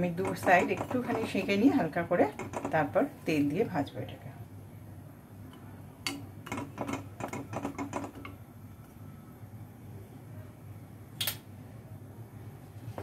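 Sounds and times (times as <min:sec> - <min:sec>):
utensil tapping on griddle: 0:00.0 - 0:01.6, 0:02.3 - 0:03.0, 0:06.1 - 0:08.4.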